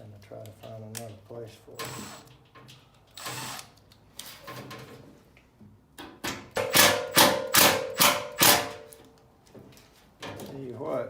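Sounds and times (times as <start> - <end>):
loud metal strikes on sheet metal: 6.5 - 8.8.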